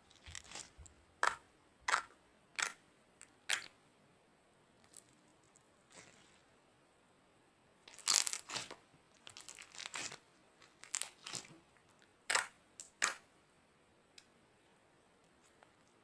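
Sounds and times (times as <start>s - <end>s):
slime squeezed crackling: 0.1s - 0.8s, 7.9s - 11.5s.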